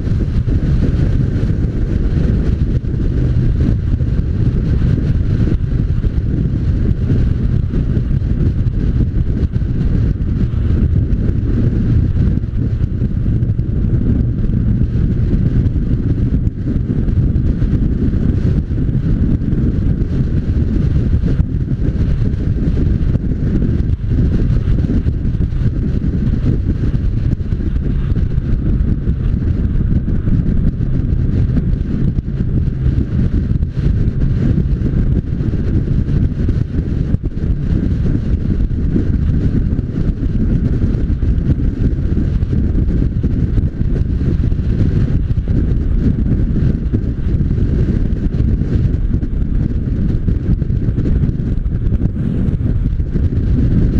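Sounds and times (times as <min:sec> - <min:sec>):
motorcycle engine running: 0:00.0 - 0:53.9
wind buffeting microphone: 0:00.0 - 0:53.9.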